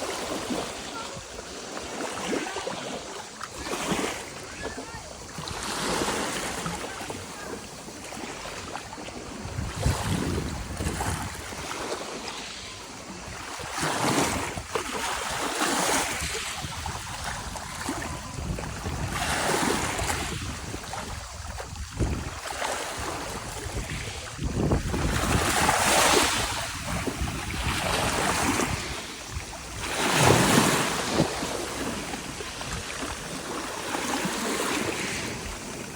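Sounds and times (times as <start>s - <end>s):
sea waves breaking: 0.0s - 35.9s
wind buffeting microphone: 9.1s - 11.7s, 13.2s - 35.9s.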